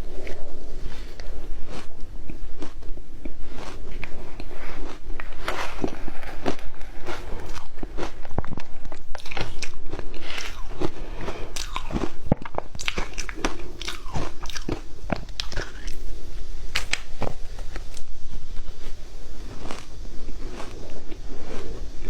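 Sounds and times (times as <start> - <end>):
ice crunching between teeth: 1.0 - 16.0.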